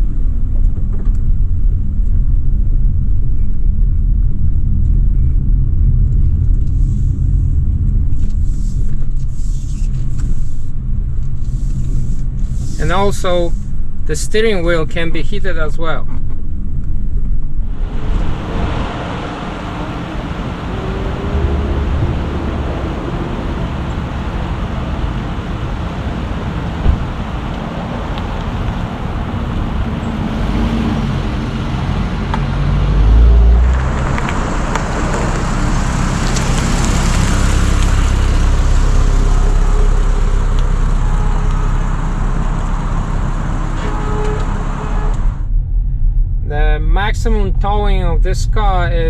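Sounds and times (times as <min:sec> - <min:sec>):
car engine and road noise: 0:00.0 - 0:49.0
hiss of tyres or wind: 0:06.6 - 0:14.0, 0:17.7 - 0:32.0, 0:33.0 - 0:45.4
deep swell: 0:17.4 - 0:49.0.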